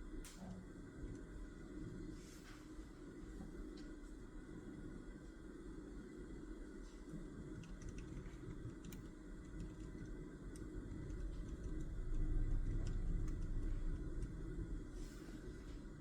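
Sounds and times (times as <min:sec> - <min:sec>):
low rumble: 0:07.6 - 0:16.0.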